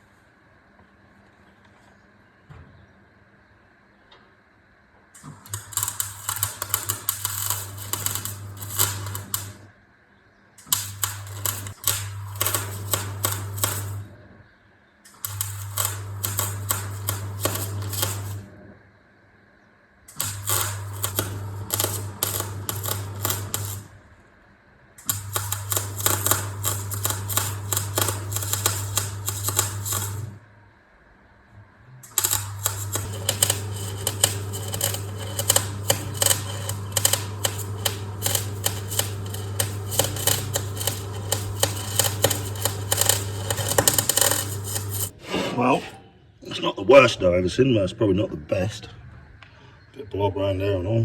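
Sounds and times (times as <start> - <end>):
welder mains hum: 0.0 - 47.1
welding arc crackling: 5.2 - 9.7, 10.6 - 14.2, 15.1 - 18.6, 20.1 - 24.1, 25.0 - 30.4, 32.0 - 45.2.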